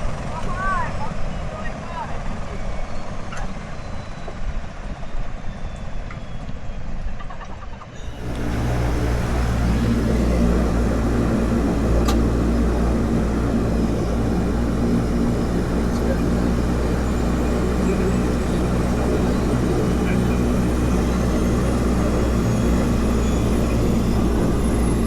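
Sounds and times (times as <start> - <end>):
engine drone: 8.0 - 25.0
rough low rumble: 8.0 - 25.0.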